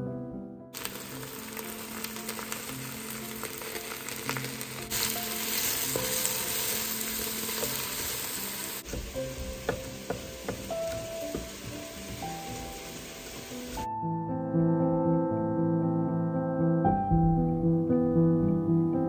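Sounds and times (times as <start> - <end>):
mushrooms sizzling in oil: 0.8 - 13.9.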